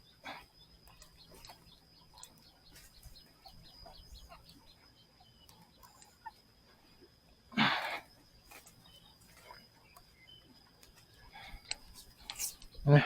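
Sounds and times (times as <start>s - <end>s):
animal chirps: 0.0s - 6.4s
steady high-pitched whine: 0.0s - 13.0s.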